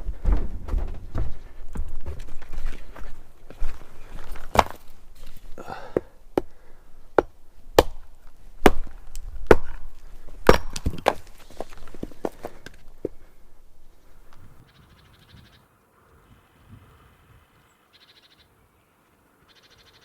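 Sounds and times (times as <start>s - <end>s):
axe chopping wood: 4.4s - 4.9s, 7.2s - 12.8s.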